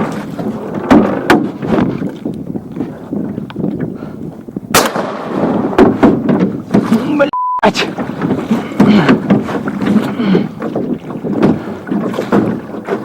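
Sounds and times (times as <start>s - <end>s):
wind noise: 0.0s - 13.0s
sharp crack: 4.7s - 5.6s
knocks against a boat hull: 5.3s - 7.0s, 8.0s - 13.0s.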